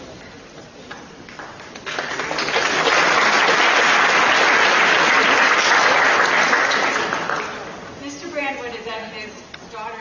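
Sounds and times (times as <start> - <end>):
audience applause: 1.3 - 7.8.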